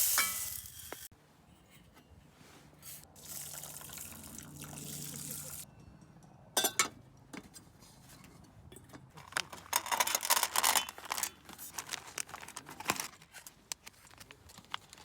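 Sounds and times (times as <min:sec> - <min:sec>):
crinkling and rustling handling: 0:07.4 - 0:15.0.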